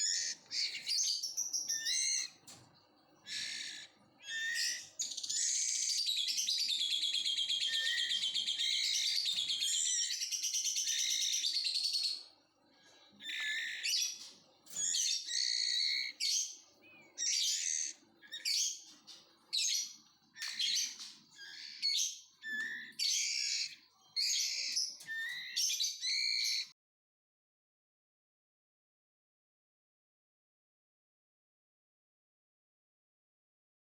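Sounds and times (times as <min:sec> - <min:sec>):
bird chicks chirping: 0:00.0 - 0:26.7.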